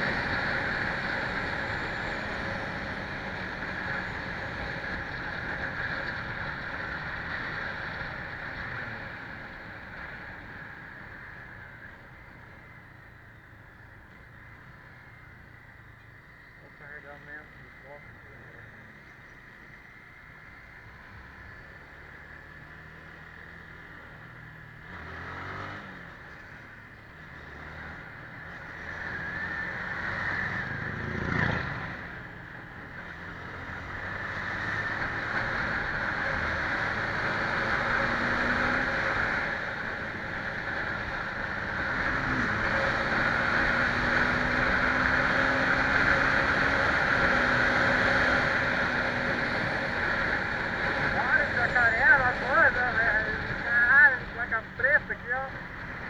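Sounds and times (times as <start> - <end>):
road and wind noise: 0.0 - 56.0
truck diesel engine climbing gears: 21.1 - 56.0.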